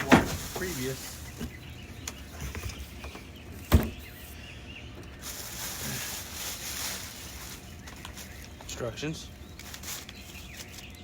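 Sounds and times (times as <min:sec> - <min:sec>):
packaging rustling: 0:05.2 - 0:08.7, 0:09.4 - 0:11.0.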